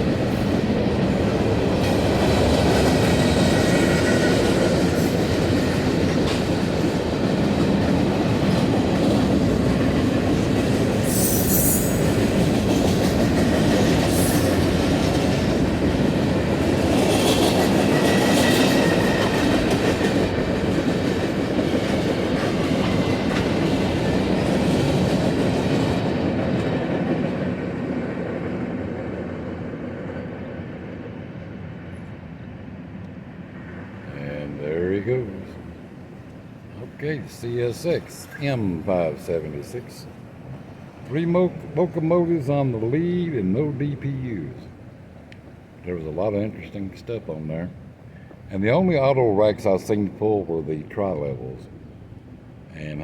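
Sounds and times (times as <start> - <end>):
train wheels rumbling on rail: 0.0 - 53.0
high wheel squeals: 11.0 - 12.3.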